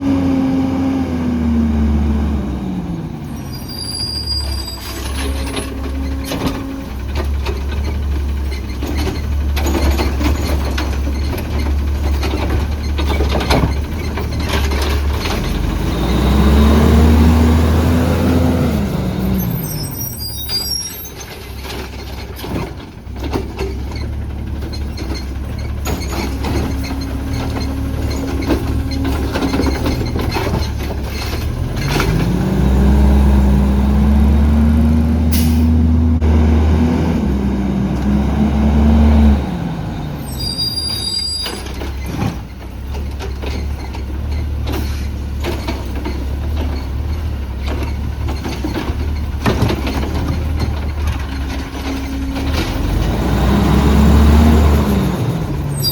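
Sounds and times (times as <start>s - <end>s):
truck engine revving: 0.0s - 20.3s, 23.6s - 41.1s, 43.7s - 55.9s
clanks and rattles: 4.4s - 15.8s, 20.5s - 32.6s, 41.4s - 53.6s.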